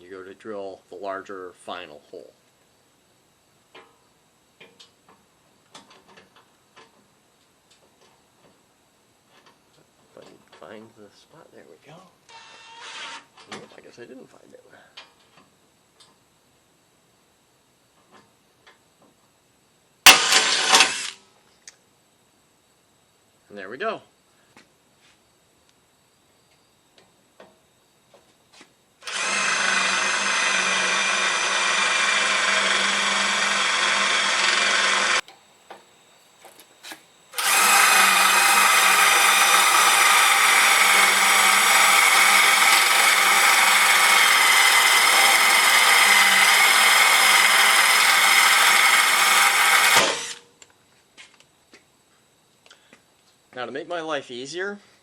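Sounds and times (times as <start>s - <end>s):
cordless drill drilling into metal: 20.1s - 21.2s, 29.0s - 35.2s, 37.4s - 50.4s.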